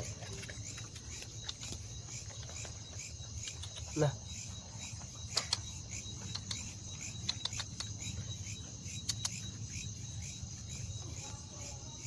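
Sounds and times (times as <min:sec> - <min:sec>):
crickets chirping: 0:00.0 - 0:12.0
sharp clicks: 0:03.3 - 0:04.0, 0:05.3 - 0:08.1, 0:09.0 - 0:09.4.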